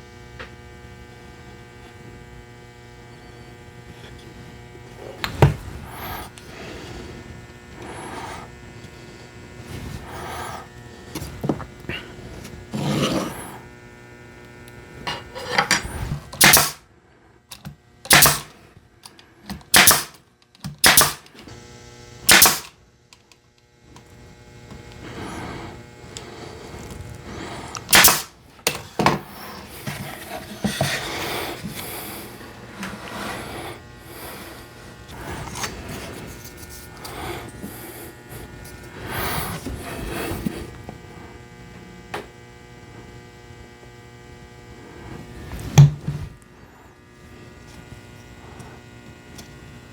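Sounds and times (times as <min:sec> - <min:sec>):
nail gun firing: 0:16.4 - 0:16.8, 0:18.1 - 0:18.6, 0:19.7 - 0:21.3, 0:22.3 - 0:22.7, 0:27.9 - 0:28.3.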